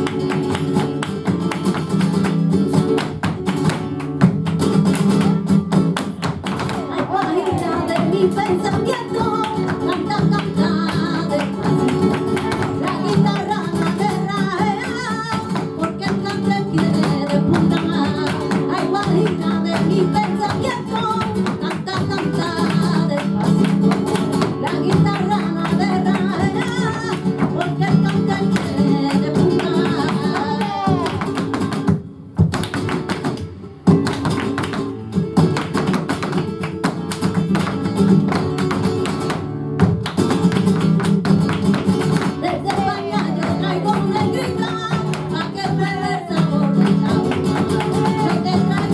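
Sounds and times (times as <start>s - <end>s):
flamenco guitar: 0.0s - 48.9s
person singing: 6.6s - 31.4s, 42.4s - 48.9s.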